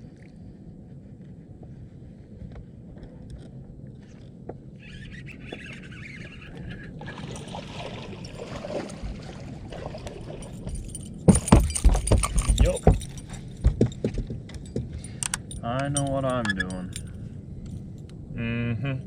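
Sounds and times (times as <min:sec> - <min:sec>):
boat engine rumble: 0:00.0 - 0:19.0
small clicks and knocks: 0:10.6 - 0:18.2.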